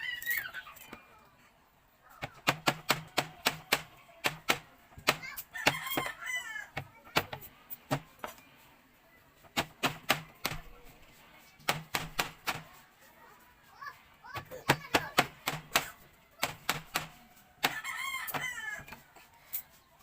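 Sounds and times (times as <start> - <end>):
rooster crowing: 5.5 - 6.7, 17.7 - 19.0.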